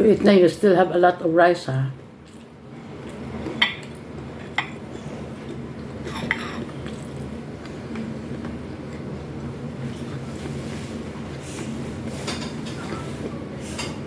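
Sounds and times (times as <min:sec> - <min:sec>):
utensils clinking against dishes: 0:06.0 - 0:07.0, 0:12.2 - 0:14.0.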